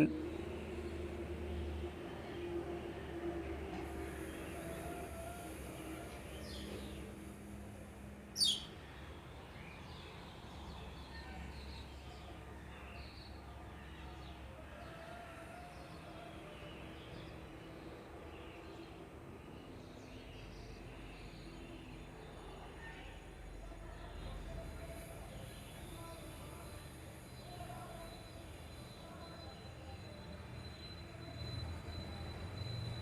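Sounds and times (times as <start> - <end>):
sharp high bird chirp: 8.4 - 8.7.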